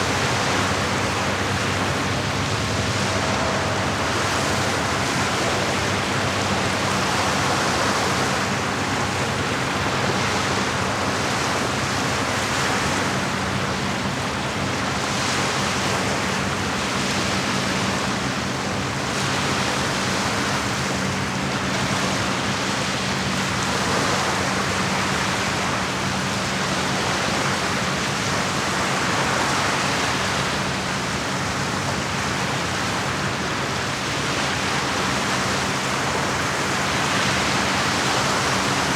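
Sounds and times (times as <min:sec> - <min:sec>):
steady low hum: 0:00.0 - 0:14.6
lake waves washing against shore: 0:00.0 - 0:38.9.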